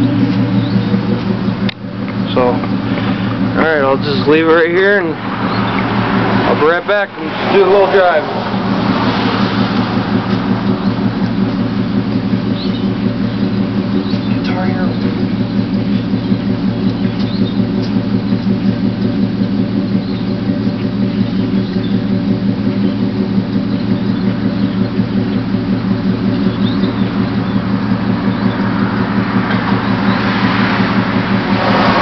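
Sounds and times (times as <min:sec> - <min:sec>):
car engine idling: 0:00.0 - 0:32.0
rushing noise: 0:28.8 - 0:32.0.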